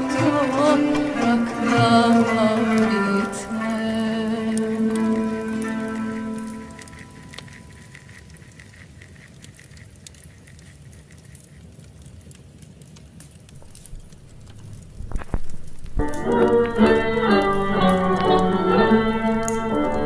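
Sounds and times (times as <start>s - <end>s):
instrumental music: 0.0s - 7.9s, 15.9s - 20.0s
fire crackling and popping: 0.0s - 20.0s.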